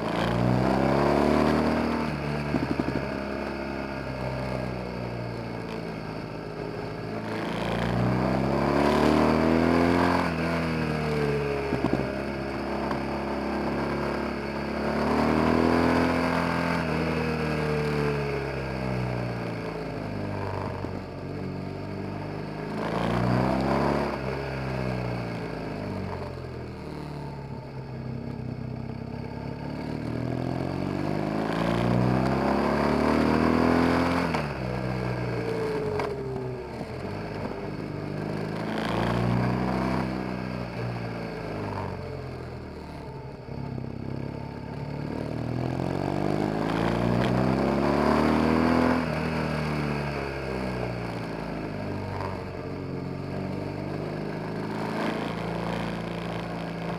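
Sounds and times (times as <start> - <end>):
motorcycle engine shifting gears: 0.0 - 56.9.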